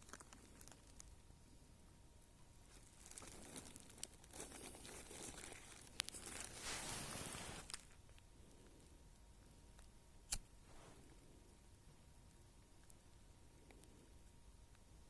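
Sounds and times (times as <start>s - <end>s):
dry material rustling: 2.7s - 7.9s.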